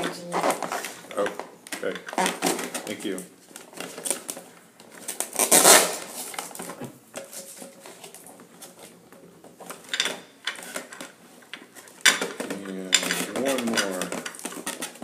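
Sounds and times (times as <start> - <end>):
packaging rustle: 0.4 - 9.0, 10.6 - 15.0
plastic pieces clicking and clattering: 9.6 - 15.0.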